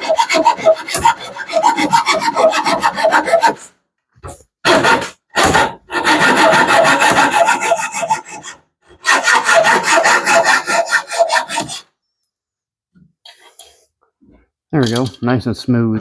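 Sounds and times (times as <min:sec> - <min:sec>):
hand tool rasping: 0:00.0 - 0:03.7, 0:04.7 - 0:11.8.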